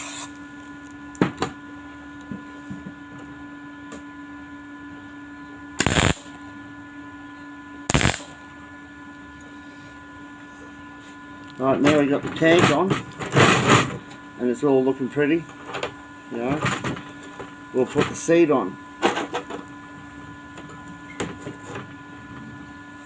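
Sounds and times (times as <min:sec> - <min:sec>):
arc welder crackling: 0:00.0 - 0:00.4, 0:05.8 - 0:06.4, 0:07.9 - 0:08.6
electrical hum: 0:00.0 - 0:23.0.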